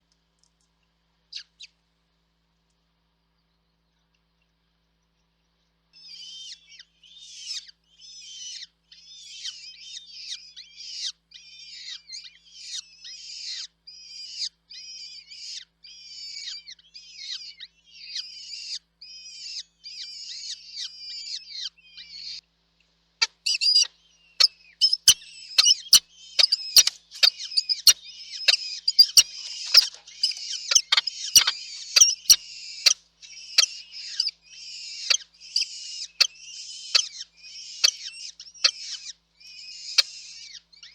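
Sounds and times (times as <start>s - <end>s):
nestlings cheeping: 23.5s - 40.6s.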